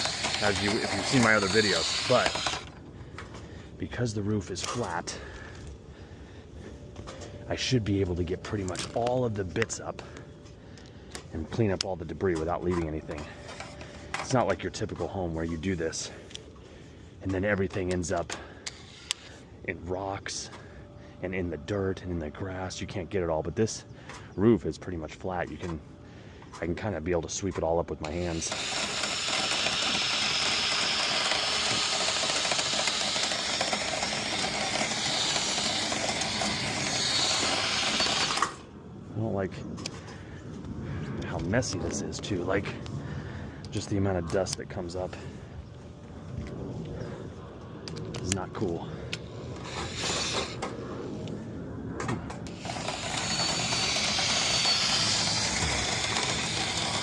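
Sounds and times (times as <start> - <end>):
drill spinning brush in duct: 0.0 - 2.8, 28.1 - 38.6, 49.5 - 50.7, 52.4 - 57.0.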